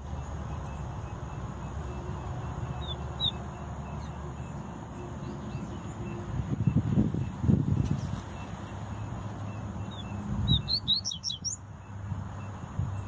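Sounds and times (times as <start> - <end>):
high bird chirps: 2.7 - 4.6, 9.8 - 11.6.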